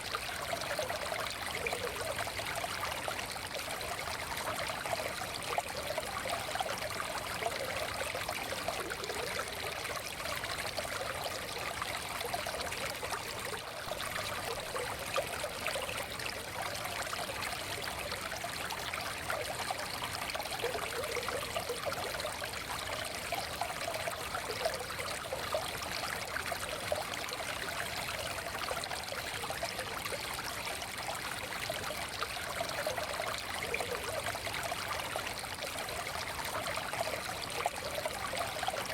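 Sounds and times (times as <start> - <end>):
stream babbling over stones: 0.0 - 38.9.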